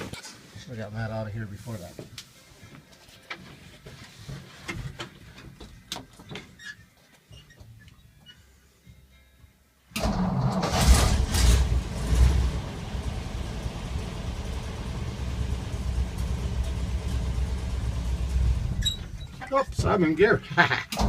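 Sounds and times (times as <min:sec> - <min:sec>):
engine starting and idling: 0:10.0 - 0:18.8.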